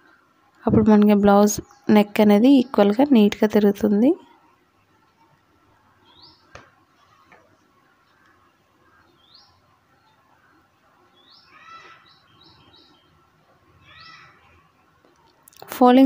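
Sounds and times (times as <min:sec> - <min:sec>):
faint bird chirping: 0:00.0 - 0:16.0.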